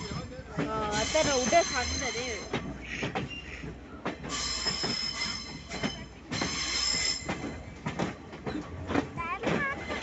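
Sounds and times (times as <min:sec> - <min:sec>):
train wheels squealing: 0:00.0 - 0:03.6, 0:04.3 - 0:07.8
train rumble: 0:00.0 - 0:10.0.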